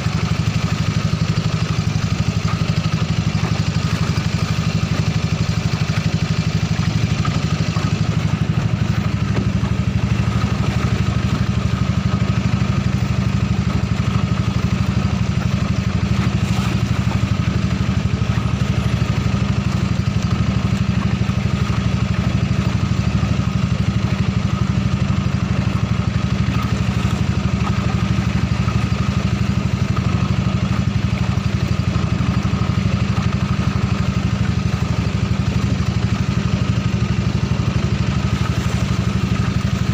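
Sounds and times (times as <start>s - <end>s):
boat engine running steadily: 0.0s - 39.9s.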